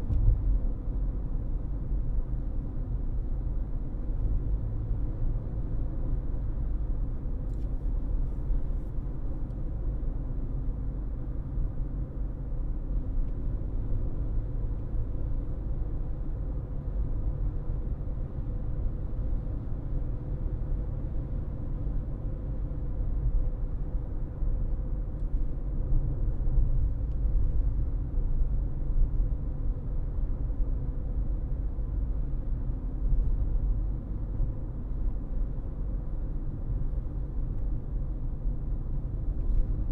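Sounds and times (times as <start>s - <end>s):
car driving rumble: 0.0s - 1.7s.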